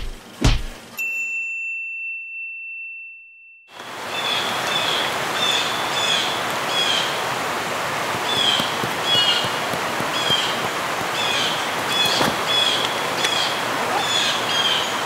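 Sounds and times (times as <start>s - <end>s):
high ringing tone: 1.0s - 3.7s
steady outdoor hiss: 3.7s - 15.0s
bird chirping: 8.2s - 15.0s.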